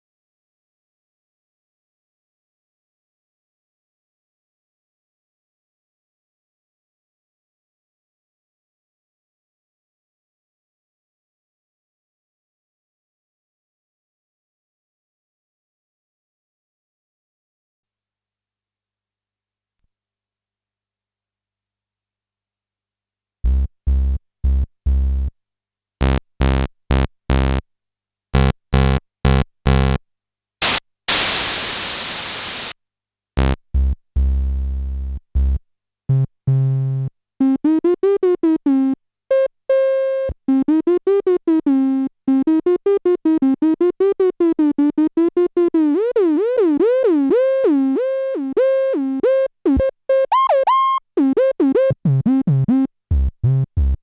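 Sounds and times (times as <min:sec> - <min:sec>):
synthesizer noise burst: 0:30.6 - 0:32.7.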